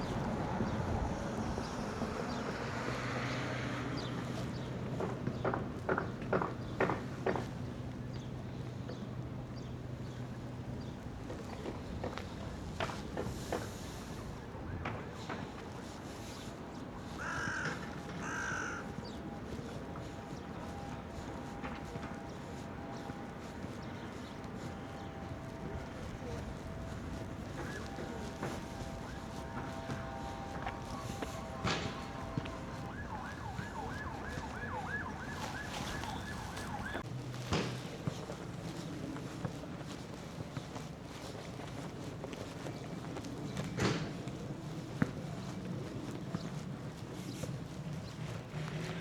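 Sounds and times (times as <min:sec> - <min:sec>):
outdoor background noise: 0:00.0 - 0:49.0
crow cawing: 0:17.2 - 0:18.9
emergency siren yelping: 0:24.5 - 0:37.0.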